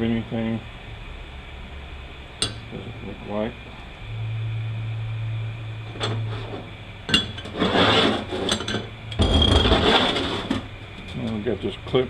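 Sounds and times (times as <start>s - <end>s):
low hum: 0.0s - 11.9s
metal clatter: 7.1s - 10.6s
metal parts clinking and scraping: 7.1s - 10.6s.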